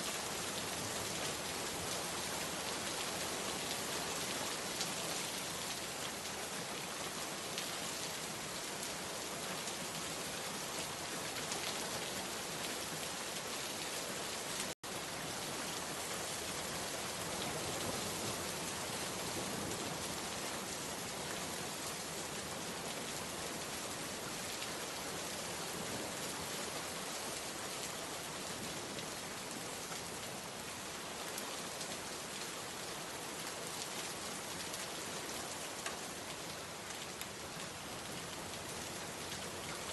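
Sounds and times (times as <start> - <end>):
rain pattering: 28.6 - 39.9.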